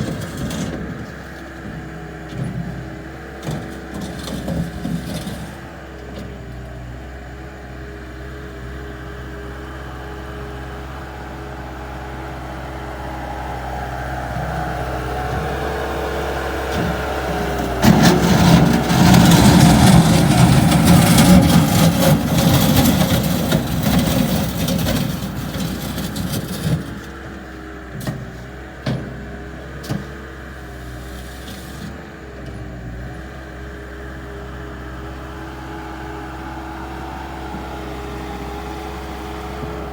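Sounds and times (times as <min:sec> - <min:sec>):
skid steer diesel engine: 0:00.0 - 0:39.9.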